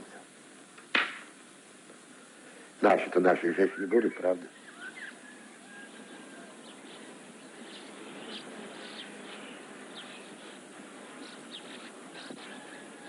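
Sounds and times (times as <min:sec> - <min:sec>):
steady background hiss: 0:00.0 - 0:13.0
small birds chirping: 0:03.4 - 0:13.0.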